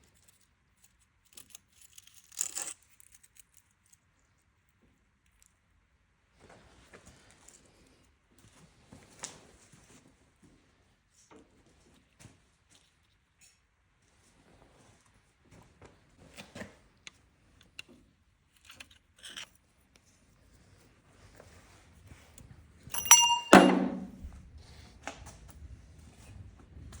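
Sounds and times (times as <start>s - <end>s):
ringing metallic clink: 22.9s - 24.2s
small metal clicks and clinks: 22.9s - 24.2s.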